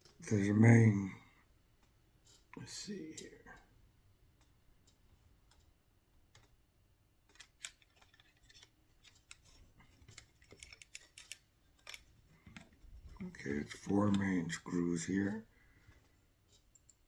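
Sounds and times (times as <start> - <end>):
clicks of small plastic parts handled: 7.2 - 14.3.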